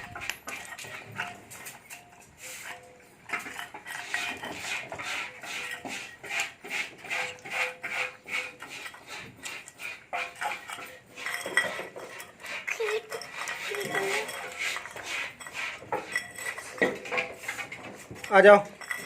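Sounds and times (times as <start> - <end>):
light metallic clinking: 10.4 - 19.0.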